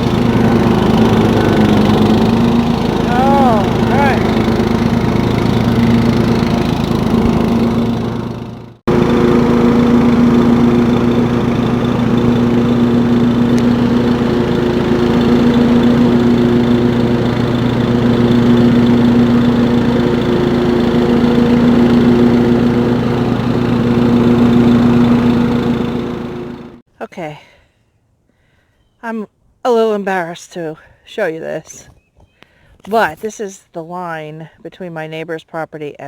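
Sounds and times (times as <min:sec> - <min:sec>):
lawn mower engine running: 0:00.0 - 0:26.9.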